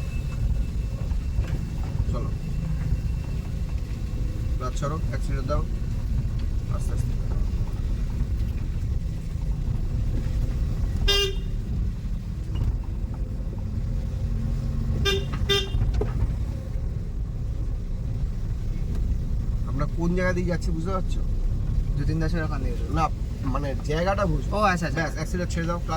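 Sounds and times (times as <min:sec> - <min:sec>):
car engine rumble and road noise: 0:00.0 - 0:25.9
car horn toots: 0:11.0 - 0:11.7, 0:15.0 - 0:16.0.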